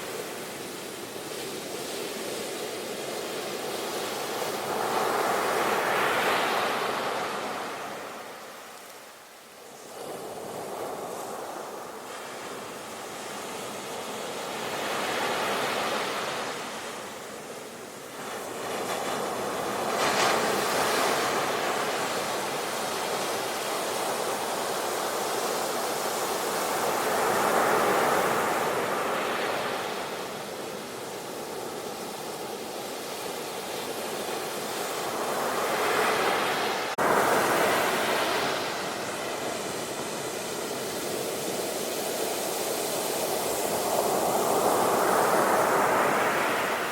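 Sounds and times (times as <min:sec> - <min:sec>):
ocean waves breaking: 0:33.5 - 0:46.9.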